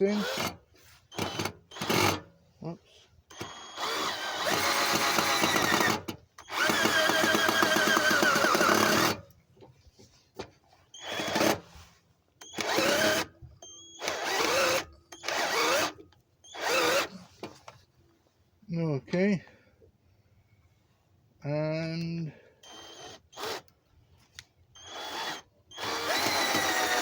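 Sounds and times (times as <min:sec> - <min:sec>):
power drill driving screws: 0:00.0 - 0:02.3, 0:03.3 - 0:09.3, 0:11.0 - 0:11.8, 0:12.4 - 0:17.2, 0:22.6 - 0:23.7, 0:24.8 - 0:27.0.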